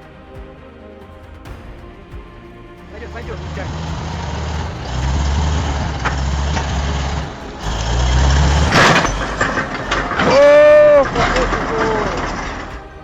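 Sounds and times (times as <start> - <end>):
heavy truck engine rumbling: 3.0 - 13.0.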